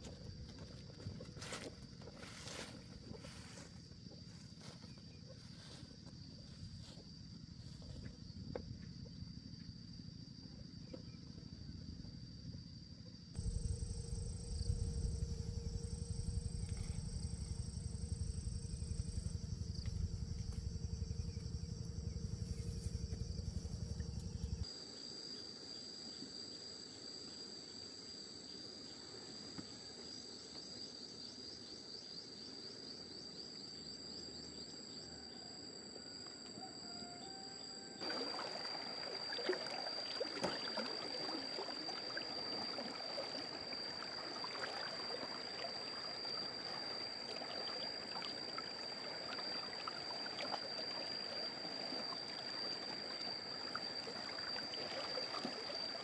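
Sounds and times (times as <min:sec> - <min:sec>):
heavy low rumble: 0:13.4 - 0:24.6
high-pitched insect drone: 0:13.4 - 0:24.7, 0:37.2 - 0:56.0.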